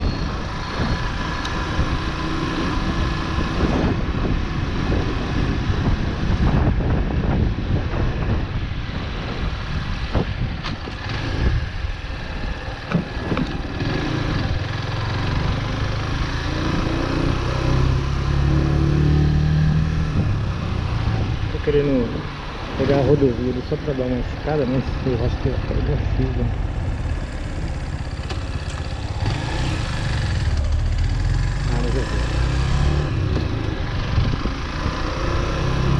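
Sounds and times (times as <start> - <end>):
rushing road noise: 0.0 - 35.9
motorcycle engine running: 10.2 - 17.4, 25.7 - 35.9.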